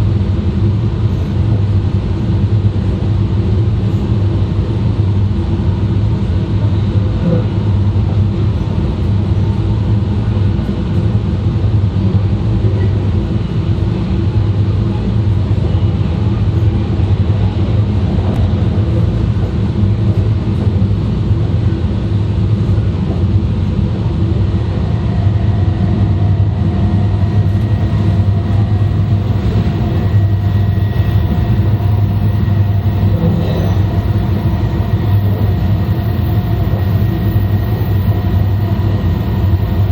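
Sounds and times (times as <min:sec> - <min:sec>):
train rumbling at speed: 0:00.0 - 0:39.9.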